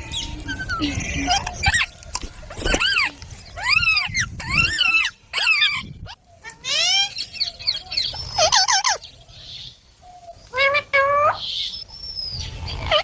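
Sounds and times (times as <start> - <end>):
parakeet squawking: 2.6 - 9.0, 12.7 - 13.0.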